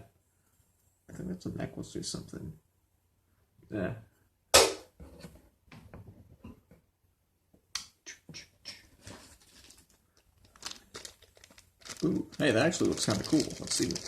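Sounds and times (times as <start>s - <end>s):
sharp knock: 4.6s - 4.9s.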